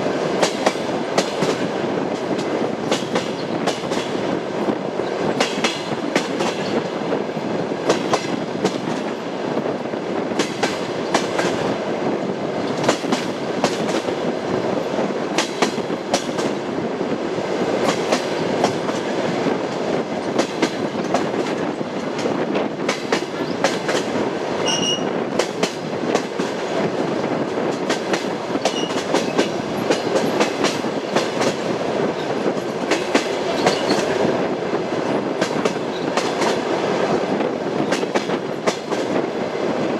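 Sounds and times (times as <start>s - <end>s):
train wheels clattering over rail joints: 0.3s - 7.0s, 7.8s - 9.2s, 10.2s - 11.7s, 12.6s - 14.3s, 15.3s - 16.6s, 17.6s - 34.4s, 35.0s - 39.4s.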